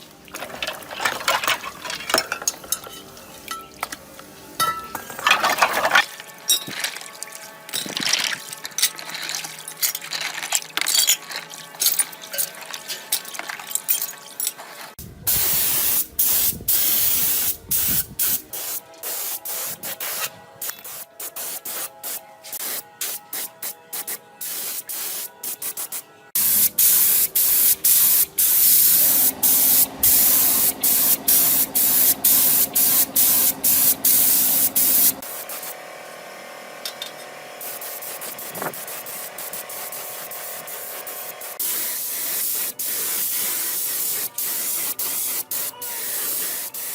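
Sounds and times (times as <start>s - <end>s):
spray hissing in bursts: 15.2s - 35.8s, 37.6s - 46.9s.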